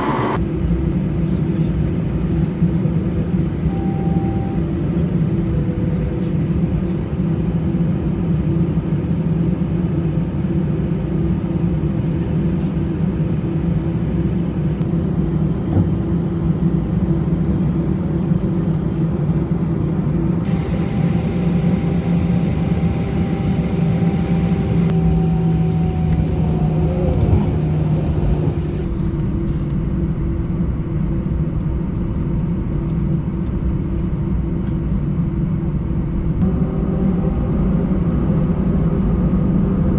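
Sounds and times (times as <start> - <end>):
high whine: 0.0 - 0.4, 20.5 - 28.9
aircraft cabin engine rumble: 0.0 - 29.7.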